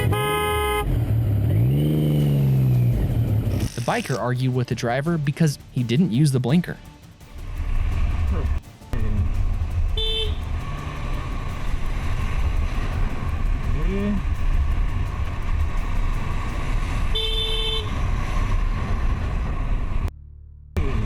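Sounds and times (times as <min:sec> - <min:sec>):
vehicle horn honking: 0:00.0 - 0:01.0, 0:10.0 - 0:10.4, 0:17.1 - 0:18.0
road and wind rumble: 0:00.0 - 0:05.0, 0:05.7 - 0:20.2.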